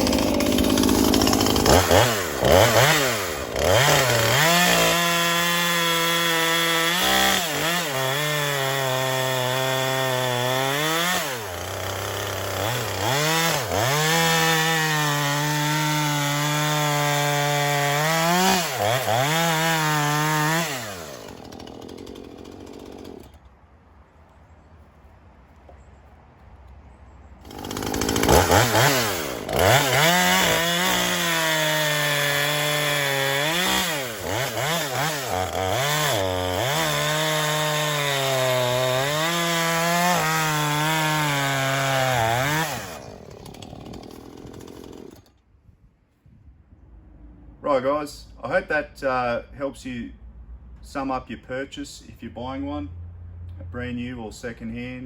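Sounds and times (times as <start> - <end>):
chainsaw revving: 0.0 - 23.4, 27.4 - 45.3.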